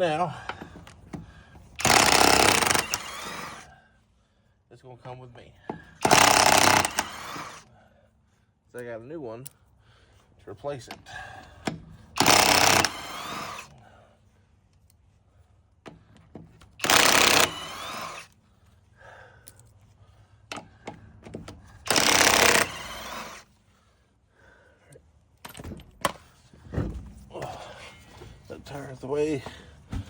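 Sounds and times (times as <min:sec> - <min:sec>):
impact wrench hammering: 0:01.8 - 0:03.5, 0:05.8 - 0:07.5, 0:11.6 - 0:13.6, 0:16.8 - 0:18.2, 0:20.5 - 0:23.4.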